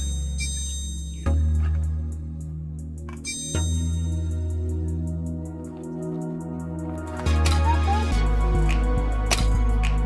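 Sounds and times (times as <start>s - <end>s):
sustained chords with strong bass: 0.0s - 10.0s.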